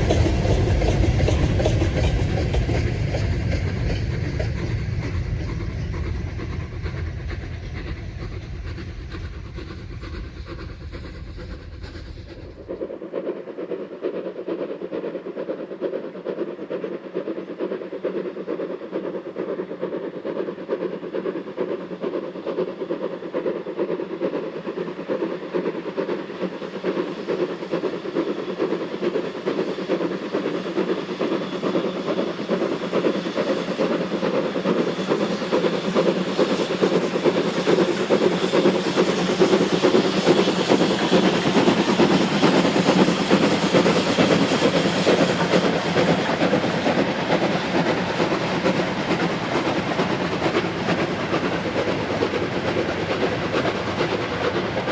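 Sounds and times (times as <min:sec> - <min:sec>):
deep rumble: 0:00.0 - 0:12.9
steam locomotive running on rails: 0:00.0 - 0:54.9.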